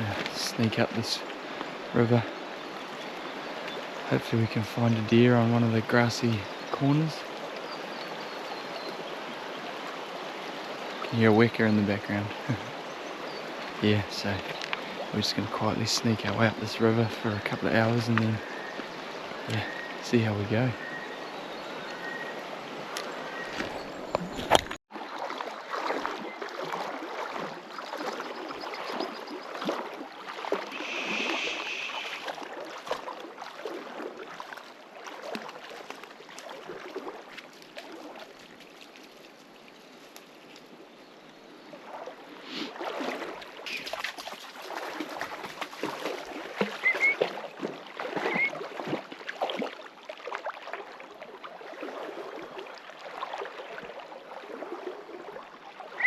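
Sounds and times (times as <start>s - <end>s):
footsteps splashing in river: 0.0s - 4.1s, 6.6s - 11.1s, 17.0s - 20.0s, 20.8s - 56.0s
running water: 21.4s - 40.8s, 41.6s - 56.0s
bird chirping: 46.8s - 47.2s.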